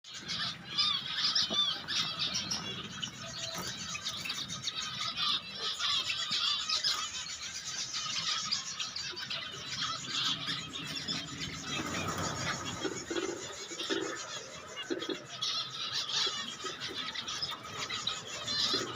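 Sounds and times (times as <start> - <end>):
finches chirping: 0.1 - 18.9.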